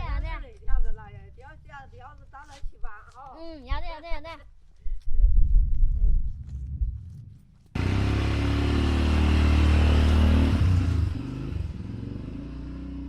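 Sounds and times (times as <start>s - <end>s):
vehicle engine running: 7.7s - 13.0s.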